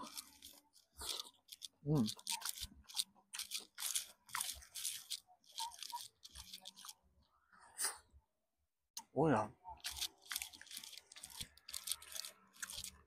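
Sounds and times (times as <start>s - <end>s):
person chewing crunchy food: 0.0s - 7.0s, 9.8s - 13.0s.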